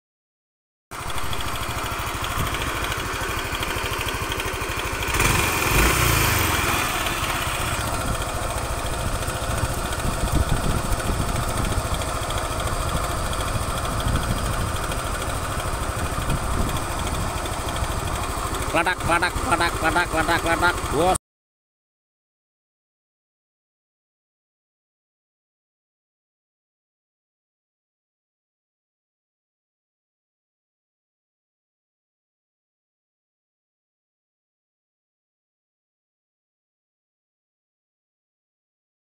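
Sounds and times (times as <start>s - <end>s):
motorcycle engine idling: 1.0s - 21.2s.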